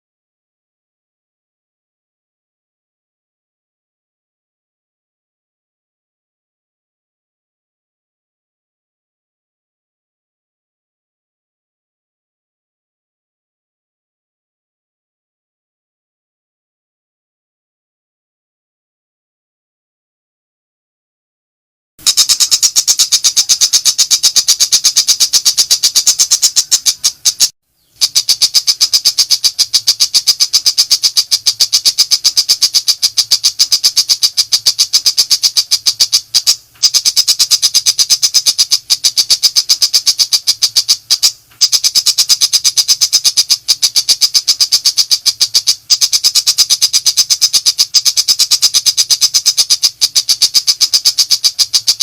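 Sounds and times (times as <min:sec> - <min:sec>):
bird singing rapid chatter: 0:22.0 - 0:52.0.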